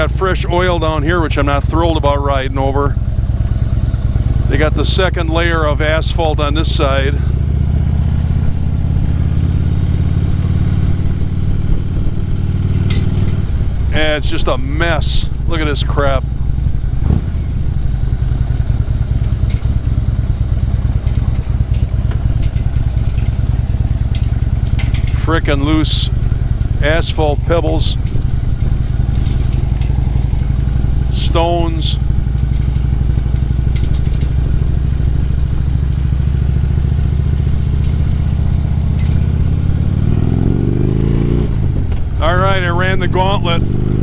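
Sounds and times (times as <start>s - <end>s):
motorcycle engine rumbling: 0.0s - 44.0s
pebbles ticking under tyres: 17.8s - 40.2s.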